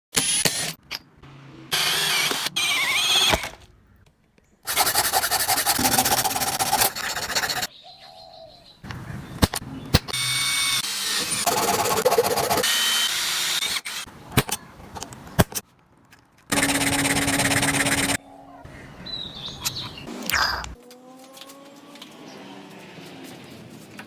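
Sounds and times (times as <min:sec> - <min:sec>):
handheld power tool running: 0:01.7 - 0:03.6, 0:10.2 - 0:14.1, 0:16.5 - 0:18.2.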